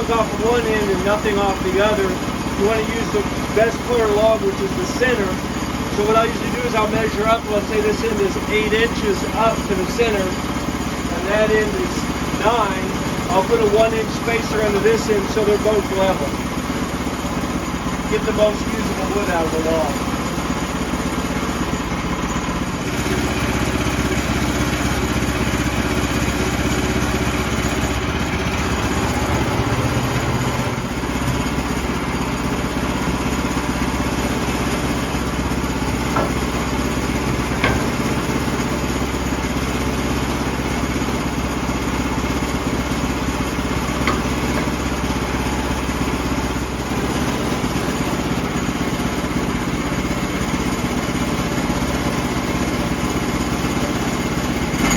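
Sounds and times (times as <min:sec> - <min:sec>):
sawmill engine sawing log: 0:00.0 - 0:54.9.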